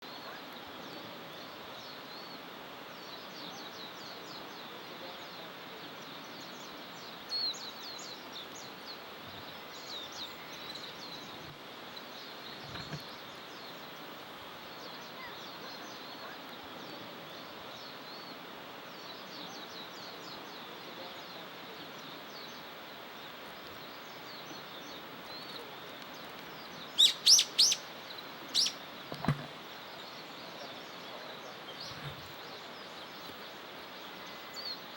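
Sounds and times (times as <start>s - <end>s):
outdoor hiss: 0.0s - 34.9s
small birds chirping: 0.0s - 34.9s
loud sharp bird calls: 26.7s - 29.4s.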